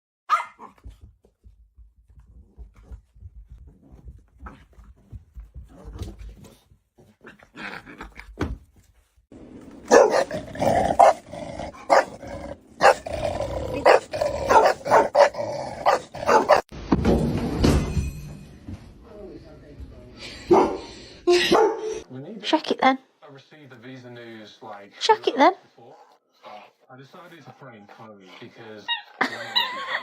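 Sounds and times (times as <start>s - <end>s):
dog barking: 0.3s - 0.8s, 9.9s - 12.2s, 12.8s - 13.1s, 13.7s - 16.7s, 20.5s - 22.0s
dog growling: 9.9s - 16.7s.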